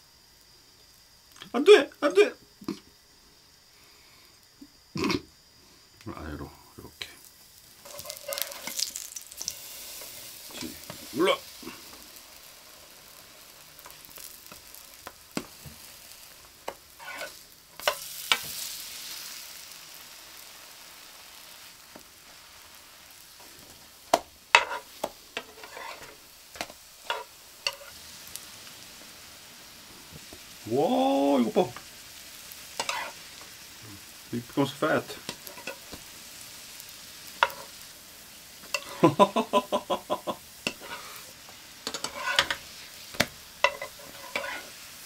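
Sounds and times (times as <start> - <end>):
pancakes sizzling in oil: 0.0 - 45.0
spatula scraping and clicking on pan: 7.8 - 11.0, 16.6 - 18.6, 24.1 - 28.0, 32.7 - 33.5, 35.2 - 36.0, 37.3 - 37.8, 38.6 - 39.0, 40.6 - 44.8.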